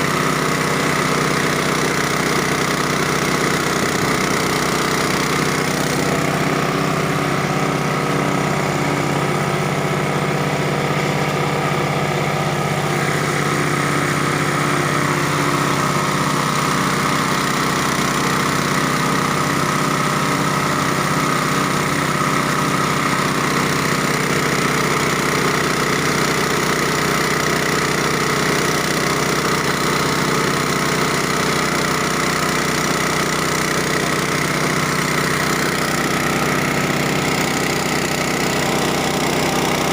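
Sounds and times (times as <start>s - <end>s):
chopping machine droning: 0.0s - 39.9s.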